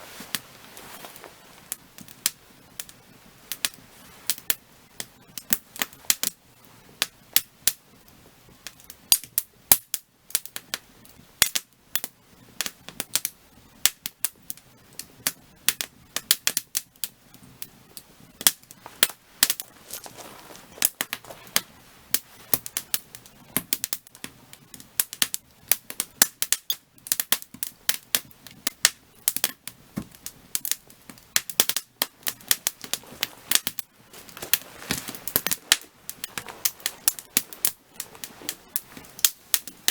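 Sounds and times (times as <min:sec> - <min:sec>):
faint hiss of flames: 0:00.0 - 0:39.9
firewood crackling and popping: 0:00.0 - 0:39.9.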